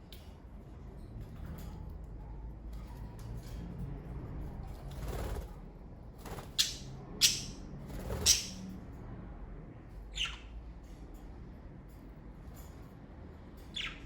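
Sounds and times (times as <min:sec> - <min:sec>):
budgerigars chirping: 0:06.6 - 0:07.6, 0:08.2 - 0:08.6, 0:10.1 - 0:10.5, 0:13.8 - 0:14.0.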